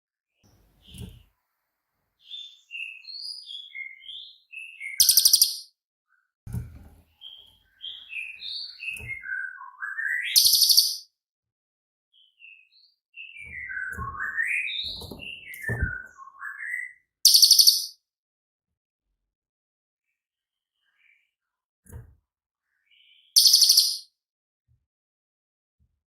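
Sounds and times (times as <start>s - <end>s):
songbird whistling notes: 2.2s - 5.7s, 7.2s - 11.1s, 13.2s - 18.0s, 23.0s - 24.1s.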